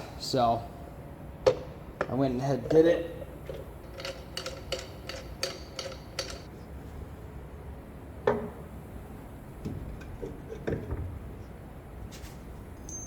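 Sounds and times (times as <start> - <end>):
hand tools clicking on metal bolts: 3.8 - 6.5.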